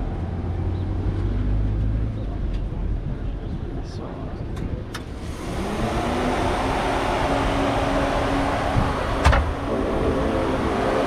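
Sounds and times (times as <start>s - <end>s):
car engine idling: 5.0s - 11.0s.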